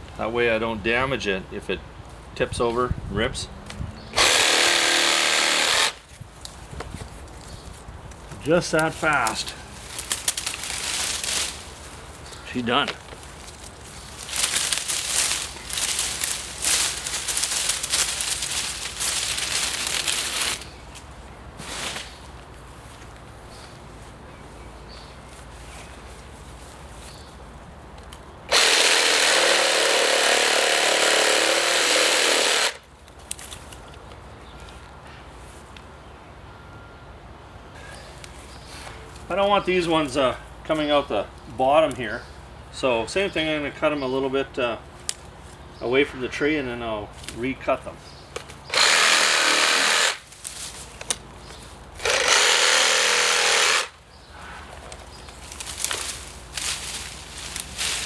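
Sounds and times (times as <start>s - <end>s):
branches rustling and clicking: 3.6s - 36.0s, 44.8s - 46.2s, 47.1s - 58.0s
reciprocating saw cutting branch: 4.1s - 6.1s, 13.6s - 20.7s, 28.5s - 32.8s, 48.7s - 51.2s, 52.0s - 54.0s.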